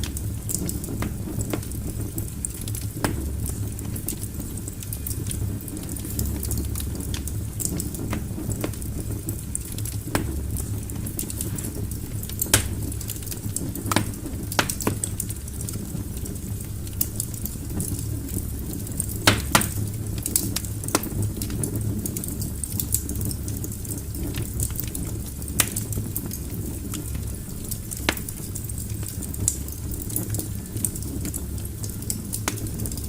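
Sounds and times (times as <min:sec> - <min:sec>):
logs crackling and popping: 0:00.0 - 0:33.0
low rumble of flames: 0:00.0 - 0:33.0.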